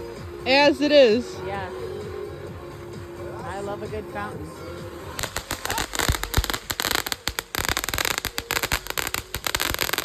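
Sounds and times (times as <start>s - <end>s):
firework fountain crackling: 5.0s - 10.0s
firework pops: 5.2s - 10.0s.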